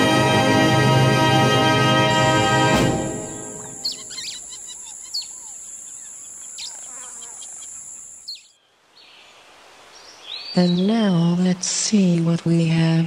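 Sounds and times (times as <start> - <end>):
small birds chirping: 3.2 - 11.2.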